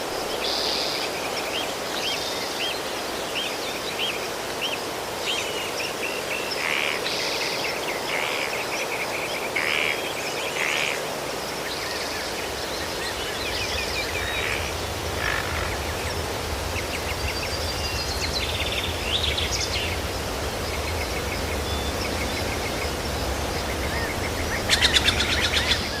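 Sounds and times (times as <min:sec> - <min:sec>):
steady outdoor hiss: 0:00.0 - 0:26.0
small birds chirping: 0:11.7 - 0:26.0.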